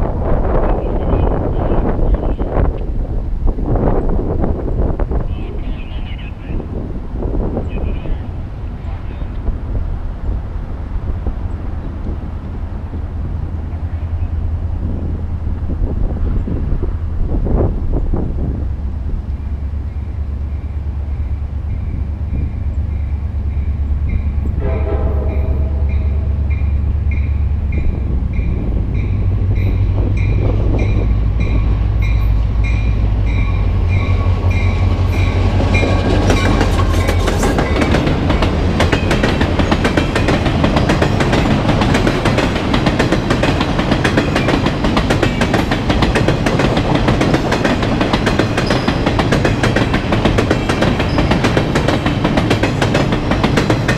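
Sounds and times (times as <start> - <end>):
locomotive engine rumbling: 0.0 - 53.9
train horn: 24.4 - 26.7
train wheel clatter: 26.5 - 53.9.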